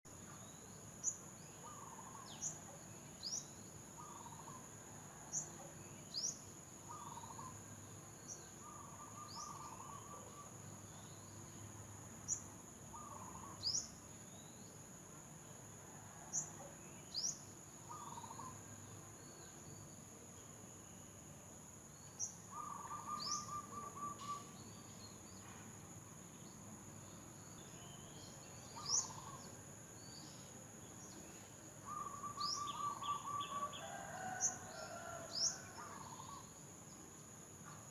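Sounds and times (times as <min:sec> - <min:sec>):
bird chirping and trilling: 0:22.6 - 0:24.6, 0:27.7 - 0:29.4, 0:31.9 - 0:33.9.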